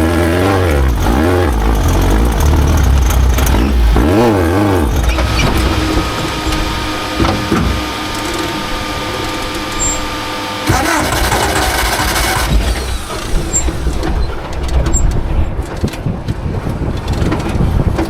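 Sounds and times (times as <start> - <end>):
race vehicle engine revving: 0.0 - 15.4
thin steady whine: 0.7 - 14.0.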